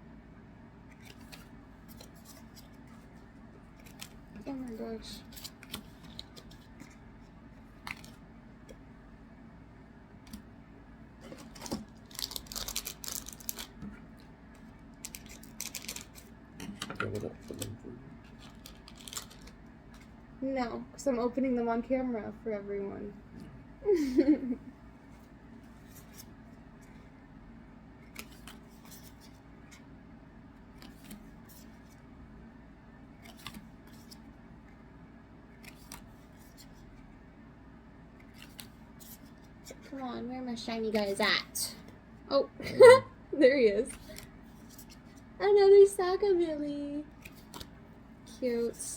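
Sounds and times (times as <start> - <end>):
card packs crinkling and clicking: 3.7 - 4.4, 7.8 - 8.2, 11.3 - 20.2, 28.1 - 29.4, 47.1 - 47.7
card pack wrappers crinkling: 11.4 - 13.8, 15.0 - 16.3, 18.3 - 20.1.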